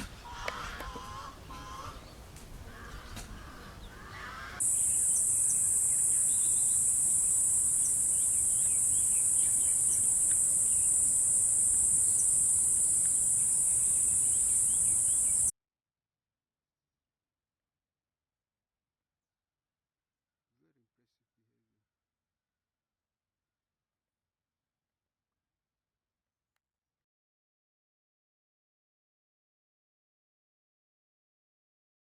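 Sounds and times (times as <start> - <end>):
bird calls: 0.0 - 15.5
high-pitched insect drone: 4.6 - 15.5.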